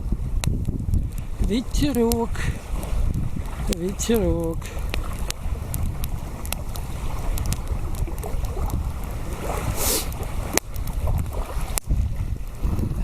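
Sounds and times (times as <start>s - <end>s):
wind buffeting microphone: 0.0s - 13.0s
short hiss: 9.8s - 10.1s.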